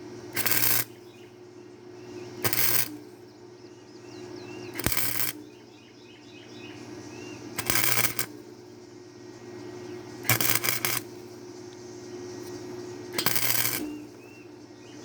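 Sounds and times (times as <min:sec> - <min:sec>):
welder arc crackling: 0:00.3 - 0:01.2, 0:02.4 - 0:03.2, 0:04.7 - 0:05.6, 0:07.5 - 0:08.6, 0:10.0 - 0:14.3
faint bird chirps: 0:00.7 - 0:15.0.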